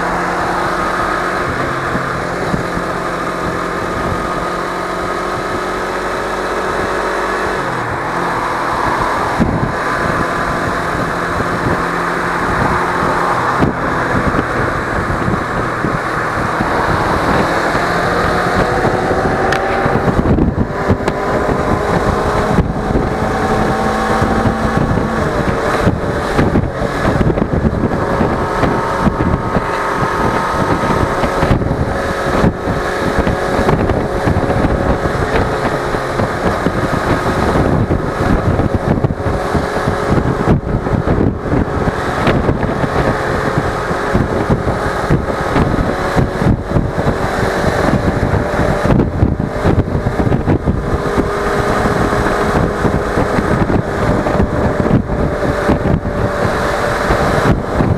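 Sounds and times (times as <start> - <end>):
motorcycle engine running: 0.0 - 57.9
wind noise on microphone: 0.0 - 57.9.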